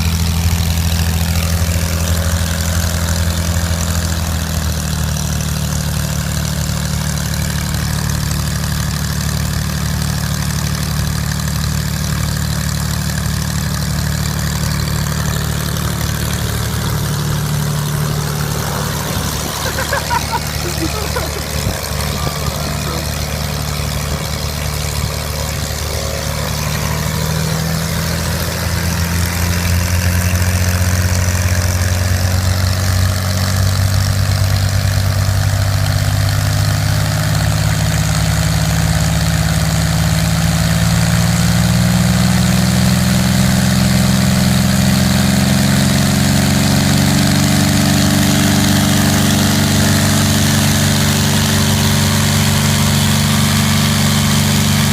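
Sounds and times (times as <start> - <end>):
airplane engine speeding up: 0.0 - 34.6, 41.2 - 54.9.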